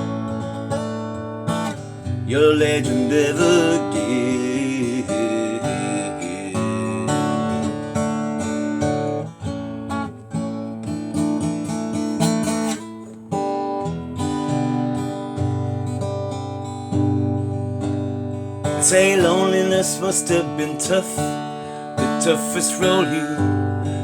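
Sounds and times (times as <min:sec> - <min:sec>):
acoustic guitar strumming chords: 0:00.0 - 0:24.0.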